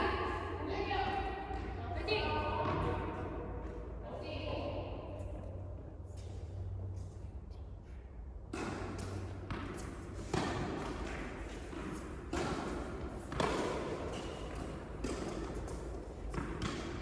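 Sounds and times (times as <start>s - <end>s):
low hum of hall: 0.0s - 17.0s
tennis ball hit by rackets: 8.5s - 17.0s.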